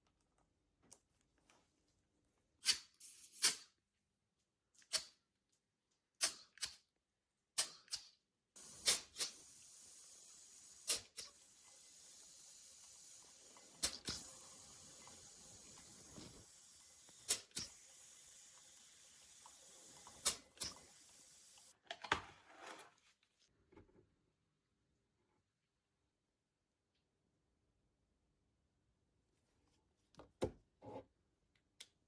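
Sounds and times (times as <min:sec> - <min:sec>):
steady hiss: 0:08.6 - 0:21.7.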